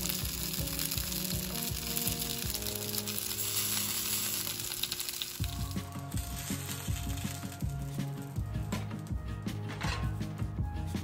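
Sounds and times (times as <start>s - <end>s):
eggplant sizzling in a pan: 0.0s - 8.7s.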